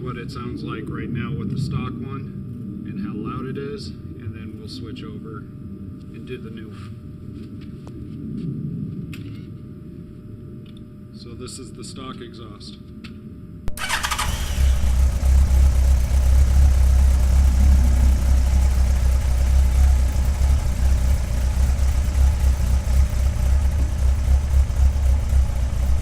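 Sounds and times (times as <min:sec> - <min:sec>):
motorcycle engine idling: 0:13.7 - 0:26.0
motorcycle engine starting: 0:13.7 - 0:26.0.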